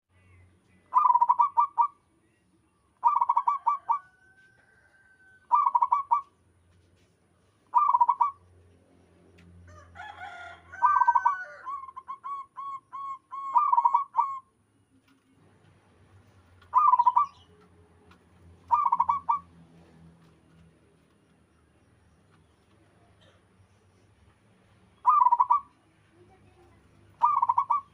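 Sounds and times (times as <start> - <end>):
dove cooing: 0.9 - 1.9, 3.0 - 4.2, 5.5 - 6.3, 7.7 - 8.4, 10.8 - 14.4, 16.6 - 17.5, 18.7 - 19.5, 25.0 - 25.8, 27.0 - 27.9.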